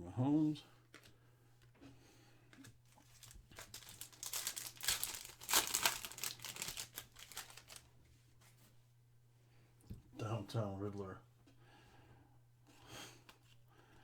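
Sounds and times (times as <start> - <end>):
wrapper crinkling: 2.9 - 7.9.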